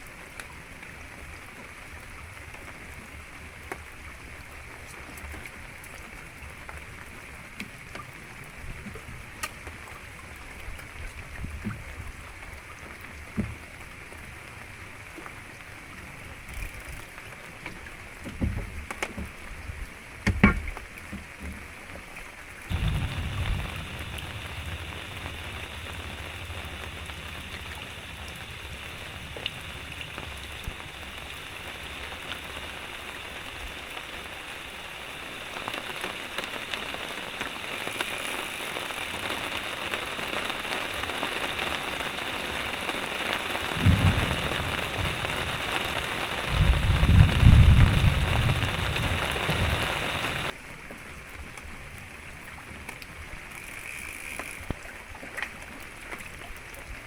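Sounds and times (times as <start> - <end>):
heavy rain pattering: 20.8 - 57.0
low rumbles: 22.7 - 34.2.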